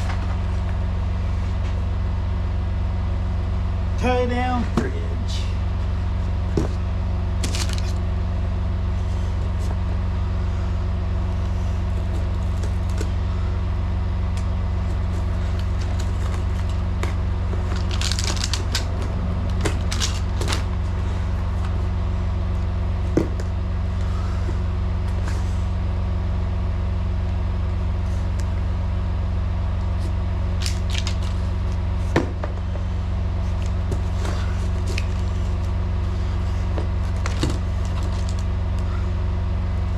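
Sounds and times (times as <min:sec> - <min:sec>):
diesel truck engine idling: 0:00.0 - 0:30.6.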